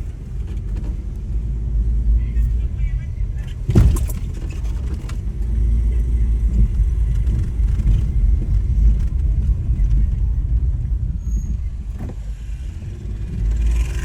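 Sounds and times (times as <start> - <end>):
vehicle rumbling along road: 0.0 - 14.0.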